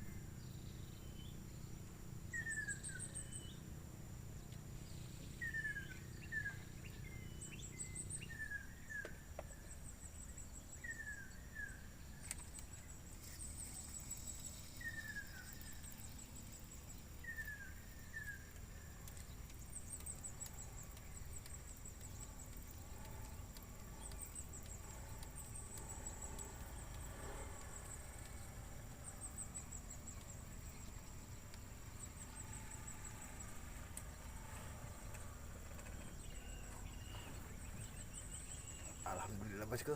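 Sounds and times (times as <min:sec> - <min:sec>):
high insect buzz: 0:11.6 - 0:39.9.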